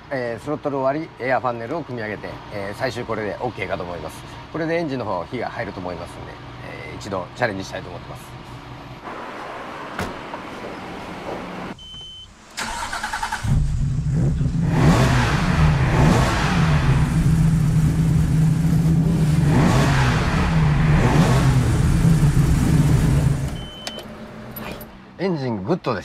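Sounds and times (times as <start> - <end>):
starter motor cranking: 12.6 - 13.6
engine running and revving: 13.4 - 23.6.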